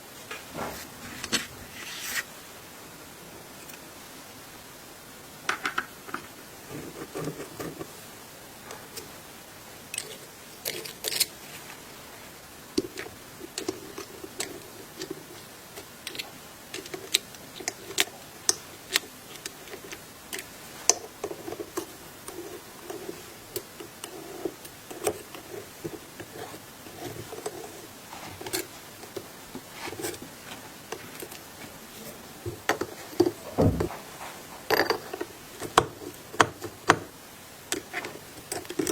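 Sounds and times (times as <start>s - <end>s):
soft rubbing and handling: 0.6s - 2.5s, 6.0s - 9.3s, 9.9s - 36.9s
clicks and taps of small parts: 15.8s - 21.9s.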